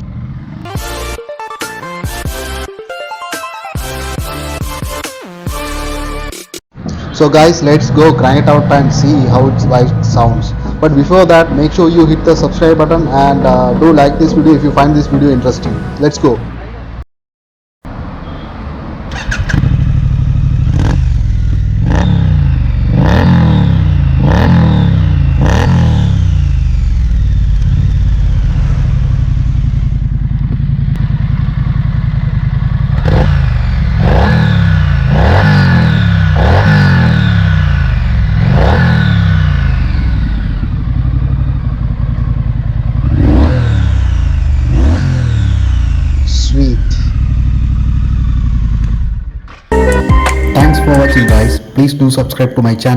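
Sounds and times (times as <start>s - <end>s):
motorcycle engine idling and revving: 0.0s - 1.2s, 6.8s - 15.6s, 17.8s - 49.7s.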